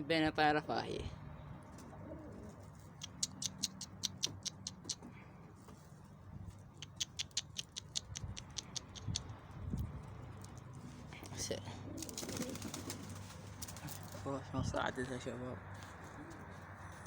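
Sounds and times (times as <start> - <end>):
pigeon pecking at grain: 6.6 - 10.8.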